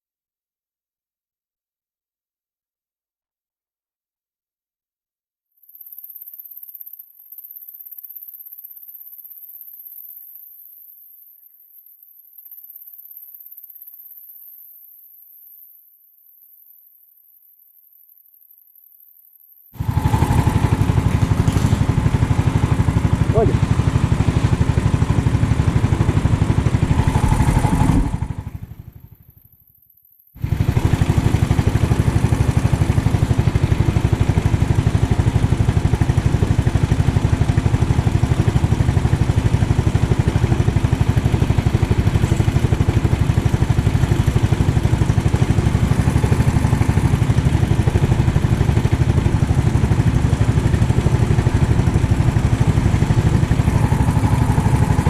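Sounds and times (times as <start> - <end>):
kart engine droning: 19.8 - 29.1, 30.4 - 55.0.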